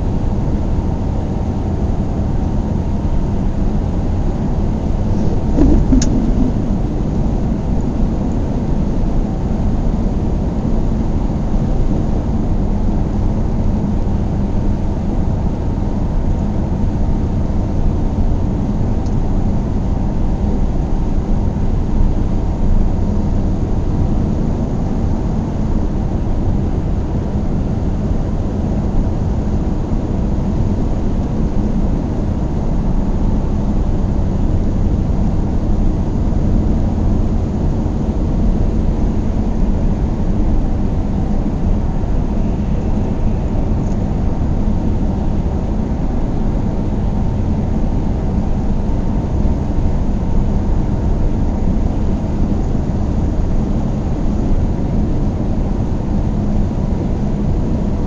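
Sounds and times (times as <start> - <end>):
car engine and road noise: 5.0 - 7.2.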